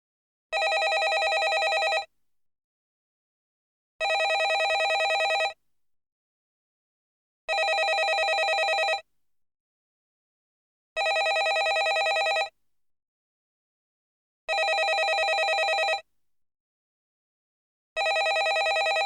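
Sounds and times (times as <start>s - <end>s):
telephone bell ringing: 0.6s - 2.1s, 4.0s - 5.6s, 7.5s - 9.0s, 11.0s - 12.5s, 14.5s - 16.0s, 18.0s - 19.0s.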